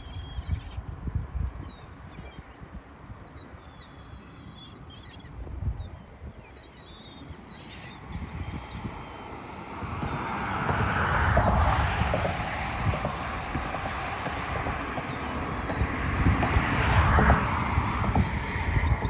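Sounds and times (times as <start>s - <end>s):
wind rumble on microphone: 0.0s - 19.0s
small birds chirping: 1.6s - 9.4s
broad rushing noise: 8.5s - 19.0s.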